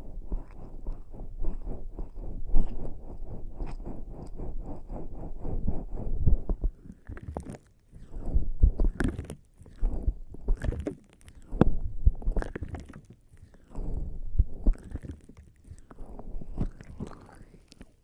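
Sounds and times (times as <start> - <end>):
skin rubbing against microphone: 0.0 - 18.0
small sticky clicks: 6.8 - 14.0, 14.6 - 18.0.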